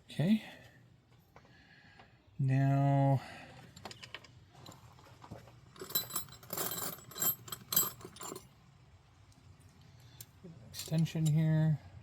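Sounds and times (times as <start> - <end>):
metal hand tools clinking: 5.7 - 8.5.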